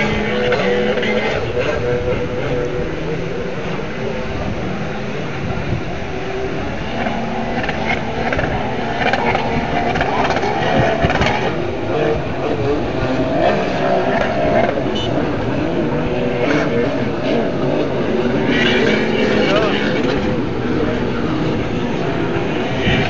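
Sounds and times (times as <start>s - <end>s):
jet ski engines running: 0.0s - 23.0s.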